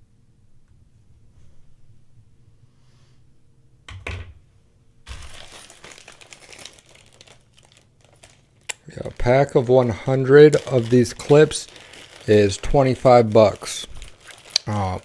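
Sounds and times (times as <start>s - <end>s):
plastic packaging crinkling: 5.1s - 15.0s.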